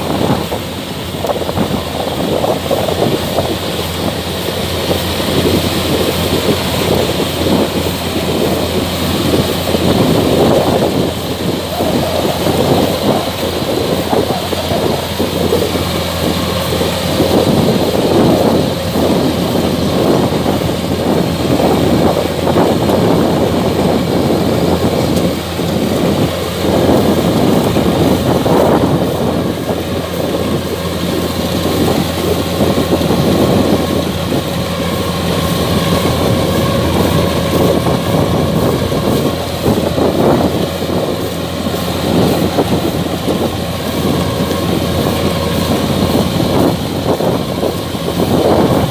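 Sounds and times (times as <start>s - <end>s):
diesel engine drone: 0.0s - 48.9s
threshing machinery clatter: 0.0s - 48.9s.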